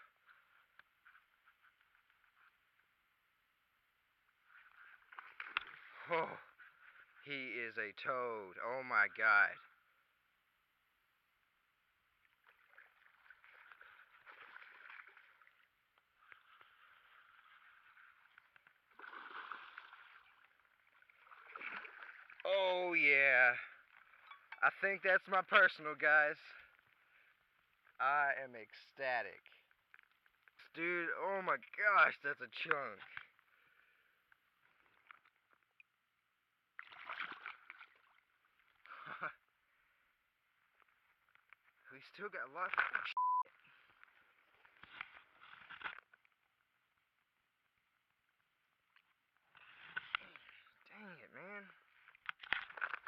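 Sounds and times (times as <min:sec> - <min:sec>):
water sloshing and splashing: 0:04.4 - 0:07.2, 0:12.1 - 0:22.5, 0:36.7 - 0:38.9, 0:51.9 - 0:53.0.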